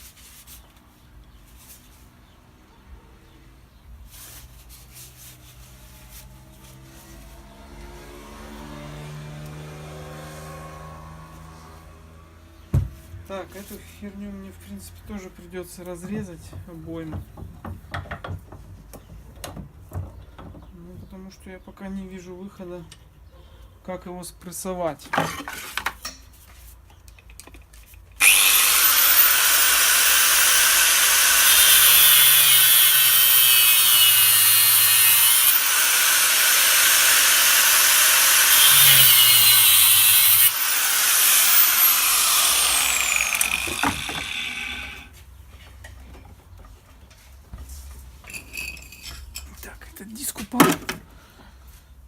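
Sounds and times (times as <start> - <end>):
cutting disc grinding steel: 28.2 - 45.2.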